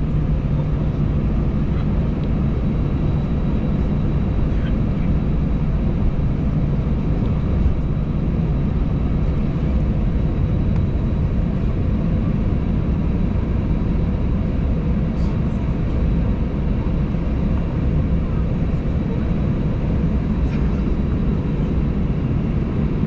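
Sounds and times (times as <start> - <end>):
aircraft engines idling: 0.0 - 23.0.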